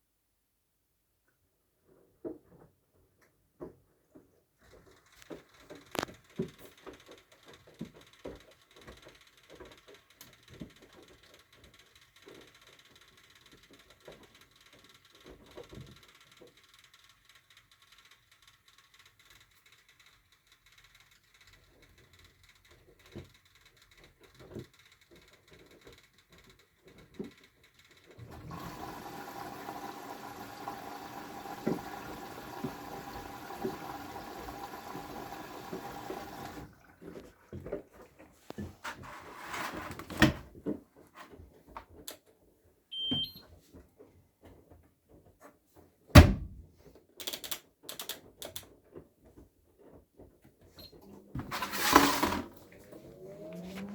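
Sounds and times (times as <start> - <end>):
water rushing into washing machine: 28.2 - 38.0, 51.3 - 53.9.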